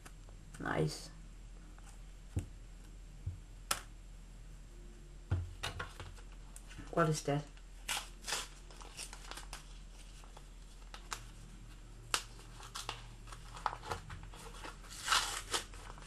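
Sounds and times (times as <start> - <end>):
packaging crinkling rustles: 7.8 - 16.0.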